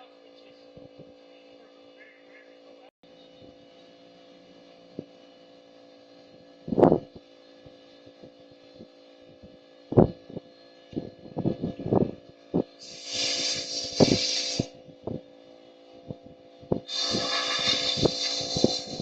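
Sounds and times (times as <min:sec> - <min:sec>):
steady hum: 0:00.0 - 0:19.0
hiss: 0:12.8 - 0:14.8, 0:16.9 - 0:19.0.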